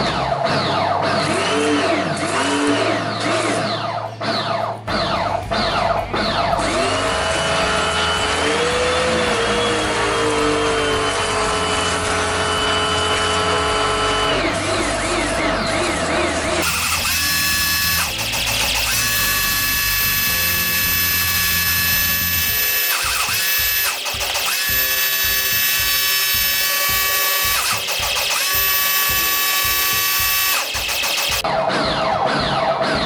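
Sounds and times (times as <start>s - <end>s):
background music with steady beat: 2.0s - 33.0s
pressure washer motor whining: 5.0s - 31.5s.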